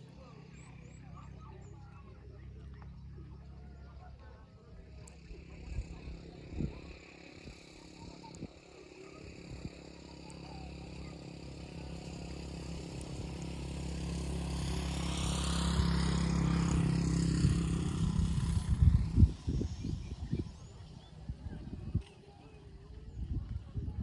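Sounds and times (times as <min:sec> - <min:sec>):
road and wind noise: 0:04.0 - 0:24.0
motorcycle engine running: 0:04.8 - 0:24.0.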